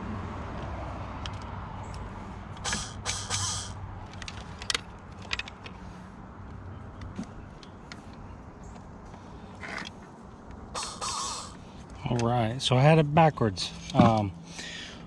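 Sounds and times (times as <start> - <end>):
sharp clicks: 1.2 - 5.7.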